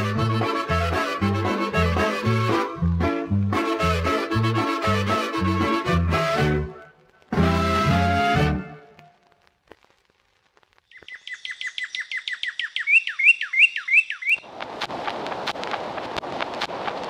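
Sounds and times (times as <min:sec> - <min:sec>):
crackling hiss with clicks: 0:06.3 - 0:12.7, 0:14.3 - 0:17.0
songbird whistling: 0:10.9 - 0:14.4.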